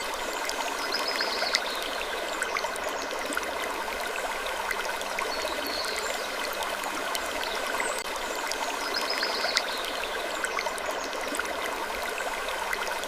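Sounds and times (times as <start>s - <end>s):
faint small clicks: 0.4s - 1.9s.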